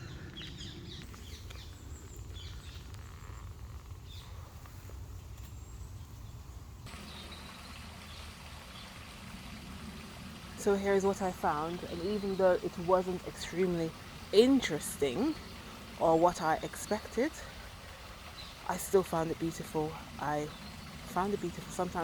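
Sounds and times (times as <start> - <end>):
stream of flowing water: 6.8 - 22.0.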